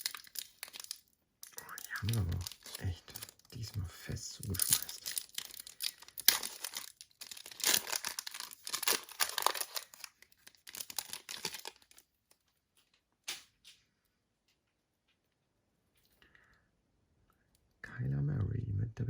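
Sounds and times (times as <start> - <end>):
foil pack tearing and crinkling: 0.0 - 3.6, 4.3 - 12.0.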